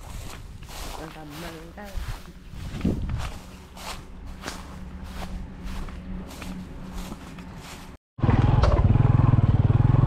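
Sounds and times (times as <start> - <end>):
footsteps walking: 0.0 - 8.0
low hum: 1.5 - 9.1.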